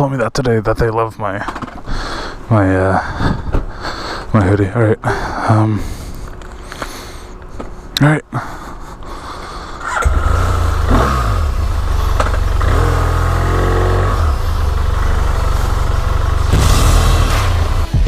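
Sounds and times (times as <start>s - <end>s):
motorcycle engine revving: 9.8s - 18.0s.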